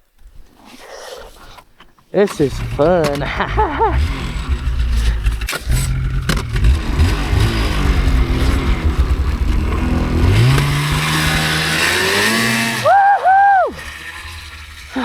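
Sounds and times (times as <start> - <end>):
snowmobile engine revving: 2.2 - 15.0
person whooping: 12.8 - 13.8.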